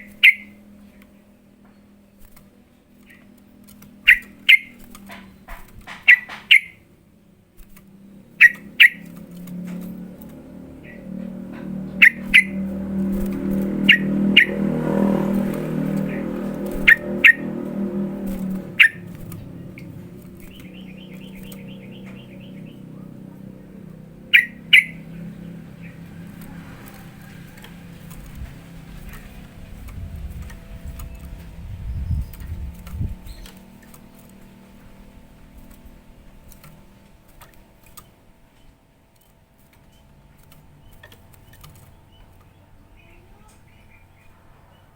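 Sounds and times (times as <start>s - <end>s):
bird chirping: 0.0s - 6.9s, 8.0s - 44.9s
bird trill: 0.0s - 6.9s, 8.1s - 36.9s
low steady hum: 0.0s - 44.9s.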